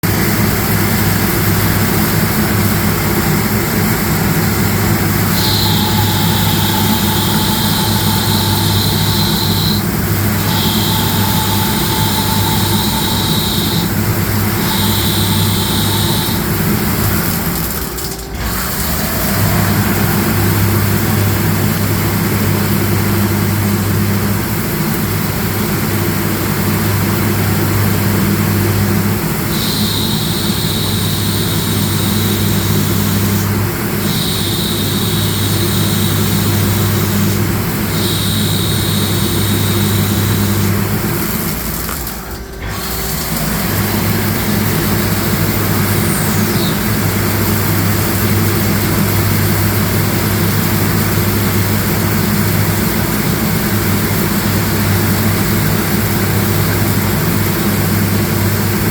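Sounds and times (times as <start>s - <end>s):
high-pitched cutting whine: 0.2s - 57.4s
lathe humming: 0.3s - 58.6s.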